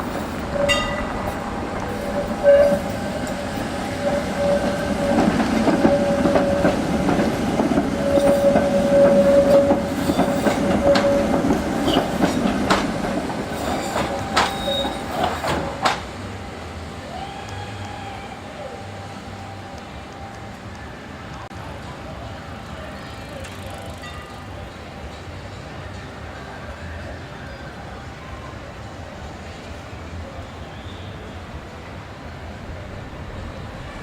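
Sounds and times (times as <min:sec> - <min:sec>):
wheels squealing: 0:00.0 - 0:16.0
wheels clicking over rail joints: 0:00.0 - 0:16.2
tram running on rails: 0:00.0 - 0:34.0.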